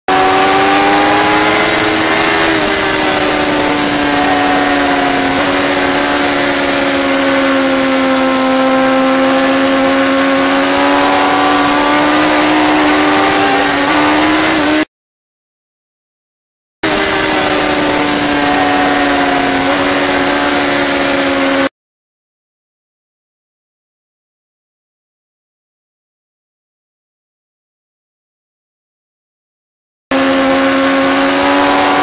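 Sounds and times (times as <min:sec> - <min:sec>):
motorcycle engine at high revs: 0:00.0 - 0:14.9, 0:16.8 - 0:21.7, 0:30.1 - 0:32.0.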